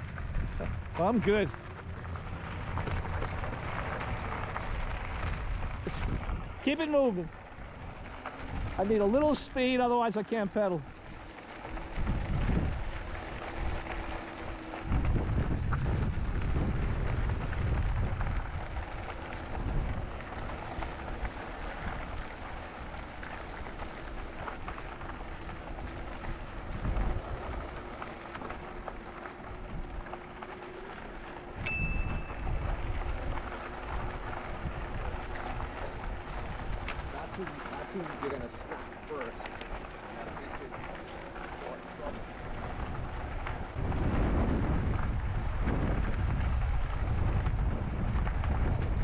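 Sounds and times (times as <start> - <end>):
tyre rumble: 0.0 - 9.4, 11.1 - 49.0
wind buffeting microphone: 0.0 - 10.3, 10.9 - 49.0
high metallic ping: 31.6 - 32.4.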